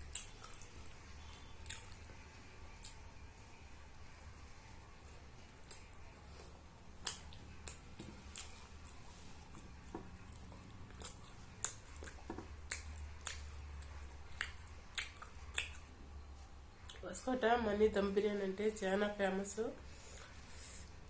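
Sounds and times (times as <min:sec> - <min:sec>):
wet chewing and mouth clicks: 0:00.0 - 0:03.0, 0:05.5 - 0:15.9
faint low hum: 0:00.0 - 0:21.0.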